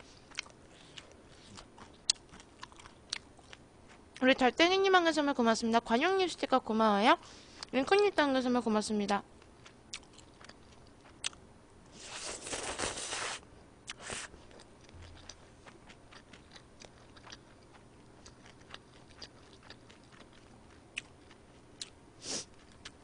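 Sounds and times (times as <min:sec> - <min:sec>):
mouth chewing and crunching: 0:00.1 - 0:04.4, 0:09.4 - 0:11.4, 0:12.0 - 0:23.0.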